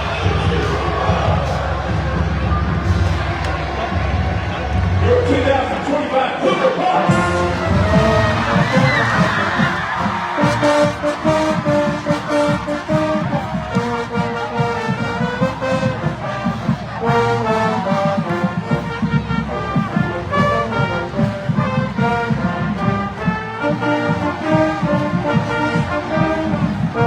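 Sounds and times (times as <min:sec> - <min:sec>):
marching drums: 0:00.0 - 0:05.7, 0:07.0 - 0:27.0
brass melody: 0:06.5 - 0:27.0.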